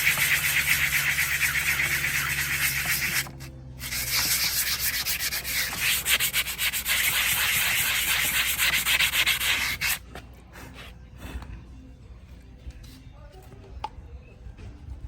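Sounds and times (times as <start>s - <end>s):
scraping on horse hoof: 0.0s - 11.6s.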